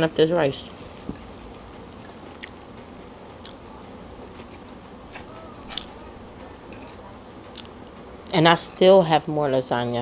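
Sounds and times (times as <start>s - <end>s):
close-up chewing: 1.9s - 2.7s.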